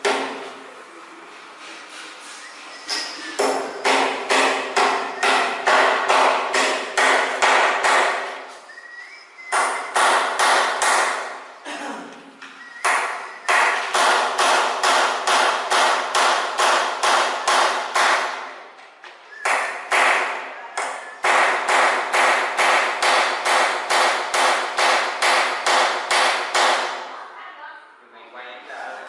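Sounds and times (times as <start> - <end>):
hammer striking: 3.4 - 8.4, 9.5 - 11.4, 12.8 - 18.5, 19.4 - 27.0.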